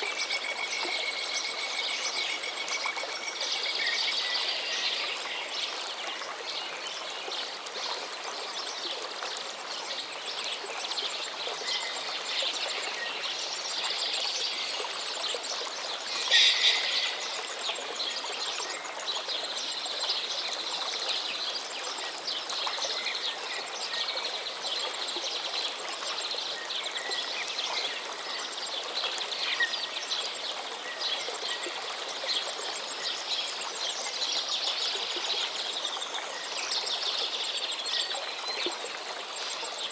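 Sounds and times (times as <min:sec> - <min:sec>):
steady background hiss: 0:10.2 - 0:22.4
small birds chirping: 0:13.7 - 0:18.9
loud bird call: 0:16.1 - 0:17.5.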